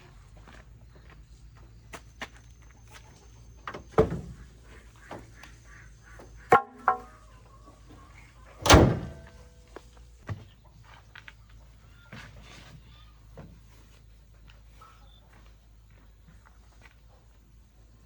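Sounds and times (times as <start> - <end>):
knocks and thuds: 3.7 - 4.5, 6.5 - 7.1, 8.6 - 9.4
ringing clanks: 6.5 - 7.2, 8.6 - 9.5.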